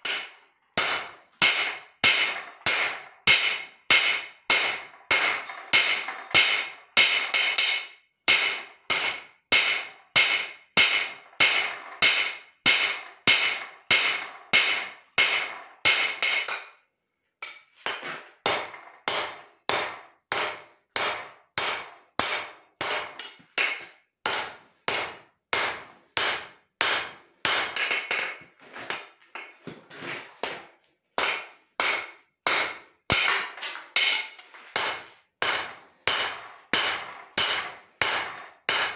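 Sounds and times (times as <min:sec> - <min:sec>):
hammer ringing on steel: 0:31.2 - 0:38.9.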